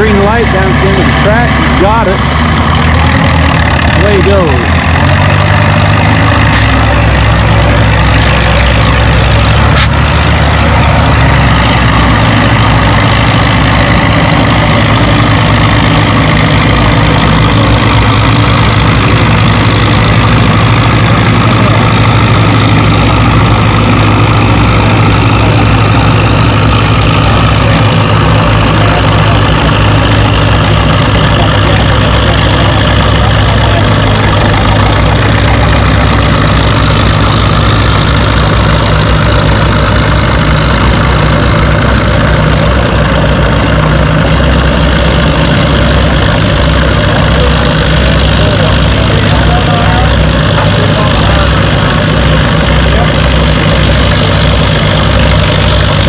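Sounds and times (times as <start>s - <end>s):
tractor engine droning: 0.0s - 56.0s.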